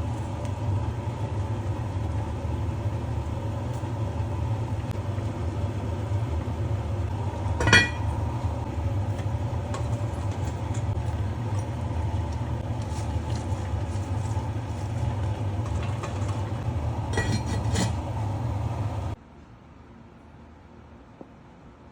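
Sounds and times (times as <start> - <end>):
cookware clinking: 7.6 - 8.2, 17.1 - 18.0.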